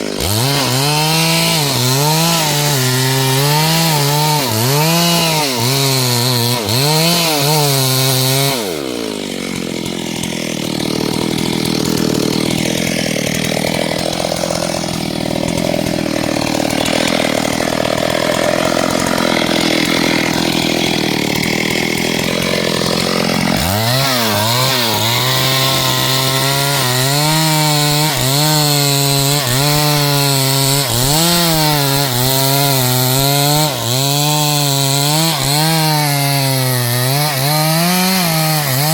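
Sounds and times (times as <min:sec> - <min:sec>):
chainsaw cutting wood: 0:00.0 - 0:38.9
chainsaw revving: 0:00.0 - 0:38.9.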